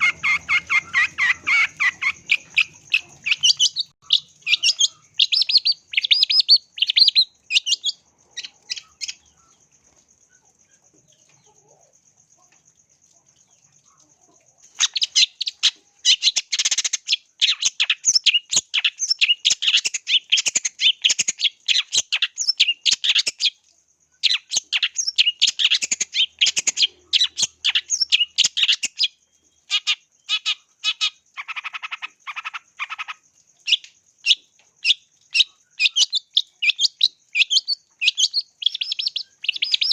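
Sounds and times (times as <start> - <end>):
bird chattering calls: 0.0 - 9.4, 29.7 - 39.9.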